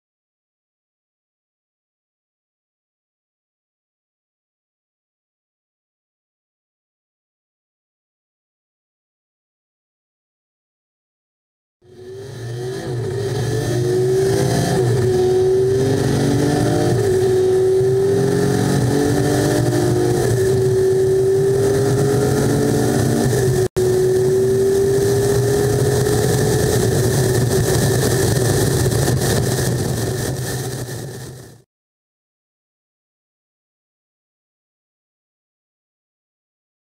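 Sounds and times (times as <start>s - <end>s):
truck diesel engine accelerating: 11.9s - 31.6s.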